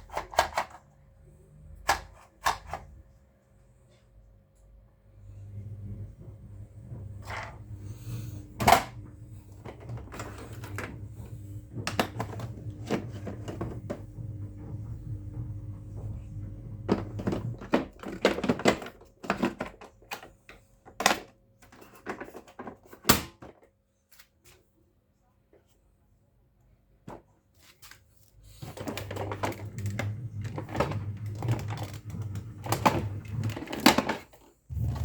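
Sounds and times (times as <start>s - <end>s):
plastic parts clicking and rattling: 0.0s - 0.9s, 1.8s - 3.0s, 16.9s - 24.3s
low steady hum: 0.1s - 19.0s, 34.7s - 35.0s.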